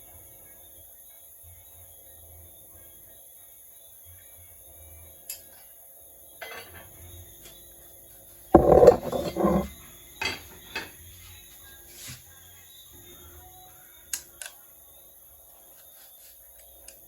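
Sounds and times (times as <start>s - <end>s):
dishes and cutlery clinking: 8.6s - 9.7s.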